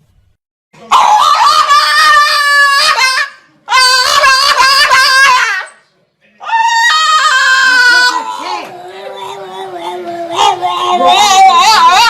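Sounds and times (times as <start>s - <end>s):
animal wavering cries: 6.4s - 12.0s.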